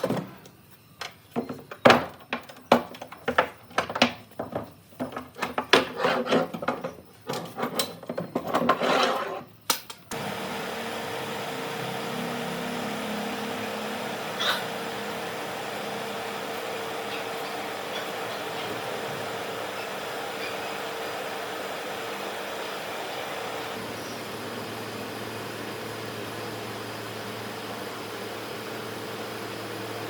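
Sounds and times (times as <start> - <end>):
machine hum: 10.1 - 30.0.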